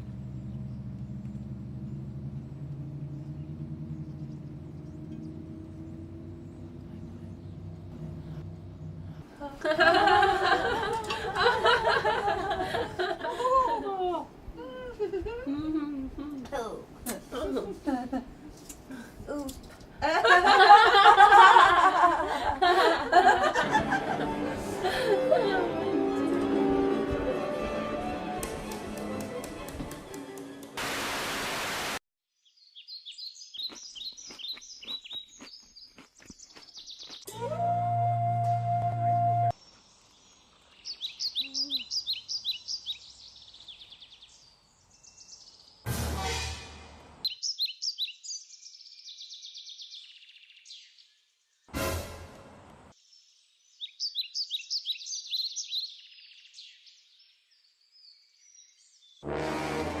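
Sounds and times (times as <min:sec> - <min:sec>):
low hum: 0:00.0 - 0:13.5
birds chirping: 0:00.0 - 0:13.6, 0:32.5 - 0:37.3, 0:39.6 - 0:45.9
white-noise static burst: 0:30.8 - 0:32.0
rapid bird chirps: 0:32.7 - 0:37.3
loud burst of sound: 0:45.9 - 0:47.2, 0:59.2 - 1:00.0.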